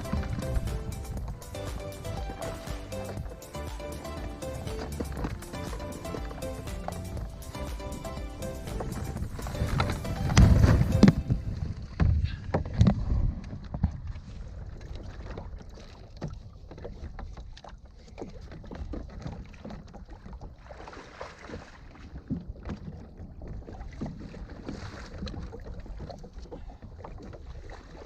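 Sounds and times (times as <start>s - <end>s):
wind rumble on microphone: 0.0s - 1.6s, 7.0s - 17.2s
water splashing against kayak hull: 0.0s - 28.0s.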